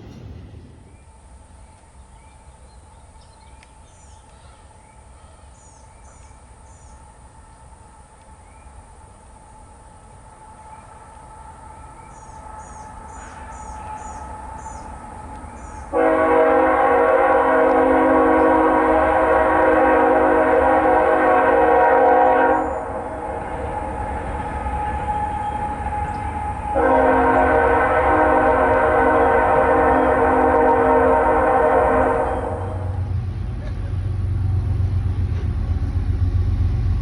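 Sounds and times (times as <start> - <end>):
low rumble of approaching train: 0.0 - 37.0
bird chirping: 0.9 - 7.0, 11.7 - 15.9
locomotive air horn blast: 15.9 - 33.1.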